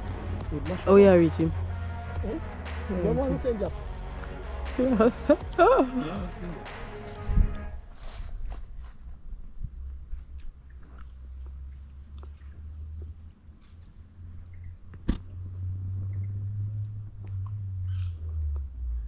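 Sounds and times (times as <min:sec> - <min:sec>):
low microphone rumble: 0:00.0 - 0:08.0.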